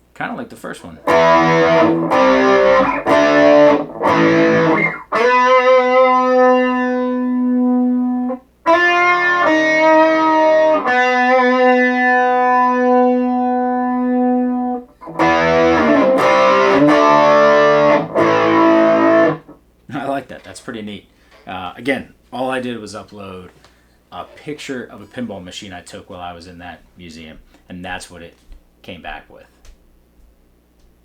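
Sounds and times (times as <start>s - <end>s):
overdriven electric guitar: 1.0s - 19.6s.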